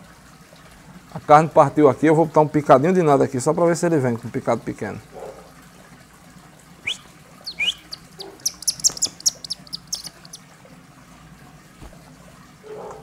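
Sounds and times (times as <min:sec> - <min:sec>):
bird whistling and chirping: 0:06.8 - 0:10.4.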